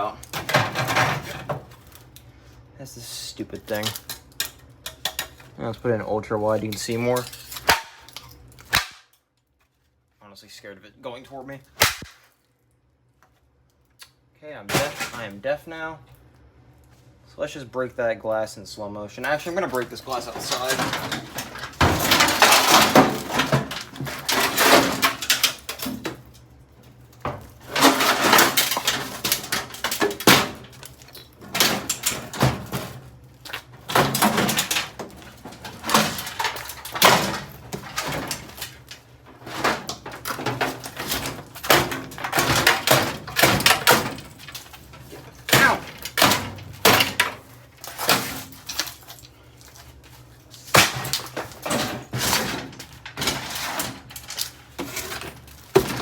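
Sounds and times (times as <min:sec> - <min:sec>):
bangs and clattering of parts: 0:00.0 - 0:01.8, 0:06.8 - 0:09.0, 0:14.7 - 0:15.3, 0:19.3 - 0:26.3, 0:27.2 - 0:49.2, 0:50.5 - 0:56.0.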